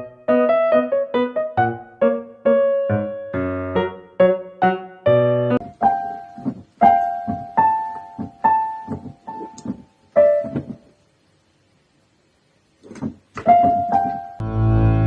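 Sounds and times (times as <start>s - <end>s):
piano music: 0.0s - 10.9s, 13.4s - 15.0s.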